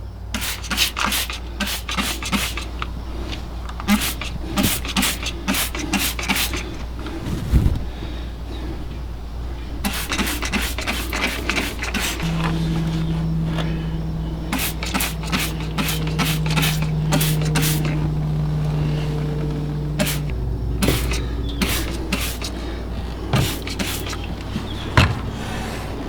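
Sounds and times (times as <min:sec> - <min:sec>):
steady low hum: 0:00.0 - 0:26.0
spray bottle squirts: 0:00.4 - 0:02.8, 0:03.8 - 0:06.8, 0:09.8 - 0:12.3, 0:14.5 - 0:18.0, 0:20.0 - 0:22.6, 0:23.3 - 0:24.3.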